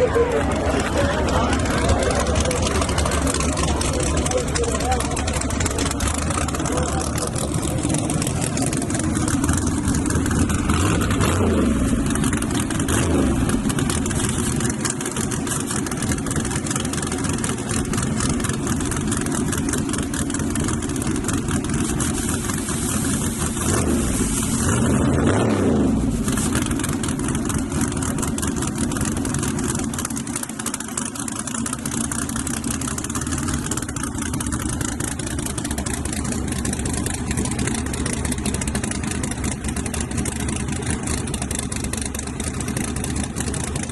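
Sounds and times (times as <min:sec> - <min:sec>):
truck engines revving loudly: 0:00.0 - 0:43.9.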